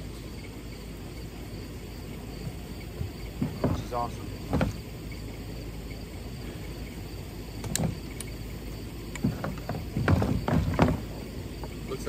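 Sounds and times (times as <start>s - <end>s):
low background noise: 0.0s - 12.0s
scuffs on kayak hull: 2.9s - 4.8s, 9.2s - 11.3s
knocks on plastic kayak hull: 3.0s - 4.8s, 9.2s - 11.8s.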